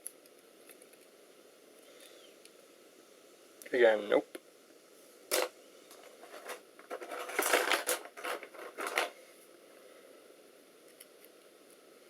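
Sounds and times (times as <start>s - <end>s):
faint hiss: 0.0s - 6.8s, 9.0s - 12.0s
plastic modules clattering: 5.3s - 9.2s.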